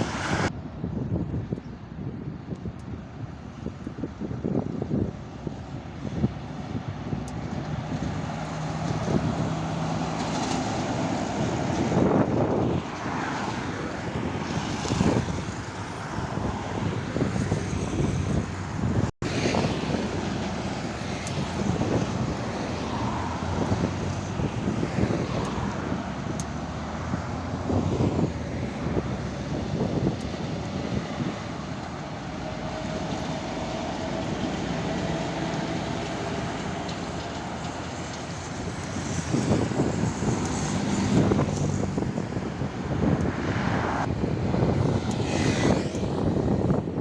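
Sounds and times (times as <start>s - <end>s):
highway traffic passing: 0.0s - 47.0s.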